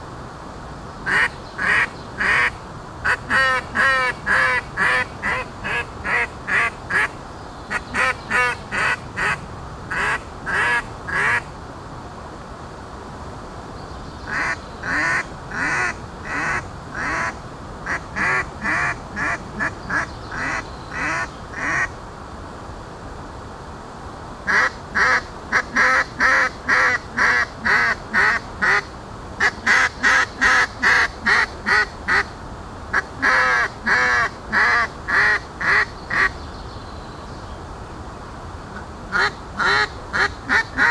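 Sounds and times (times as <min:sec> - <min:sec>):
duck call quacks: 0:01.1 - 0:07.1, 0:07.7 - 0:11.4, 0:24.5 - 0:32.3, 0:33.0 - 0:36.3, 0:39.1 - 0:40.9.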